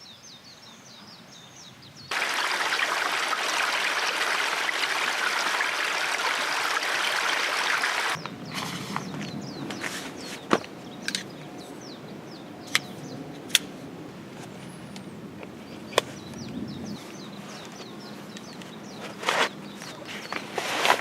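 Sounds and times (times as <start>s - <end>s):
small birds chirping: 0.0s - 13.8s, 14.5s - 21.0s
short rustle: 9.7s - 10.5s.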